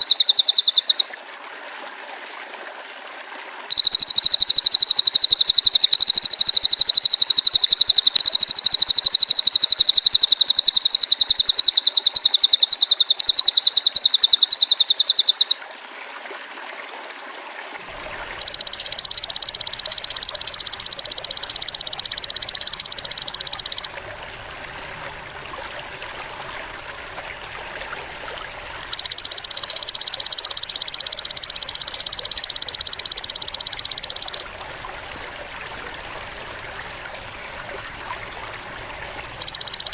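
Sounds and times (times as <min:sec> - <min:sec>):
buzzy bird trills: 0:00.0 - 0:01.1, 0:03.7 - 0:15.6, 0:18.2 - 0:24.0, 0:28.7 - 0:34.5, 0:39.1 - 0:39.9
stream water running: 0:00.0 - 0:39.9.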